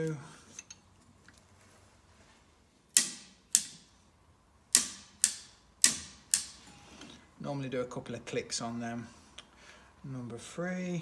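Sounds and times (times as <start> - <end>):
torque wrench clicking: 3.0 - 3.9, 4.7 - 6.6.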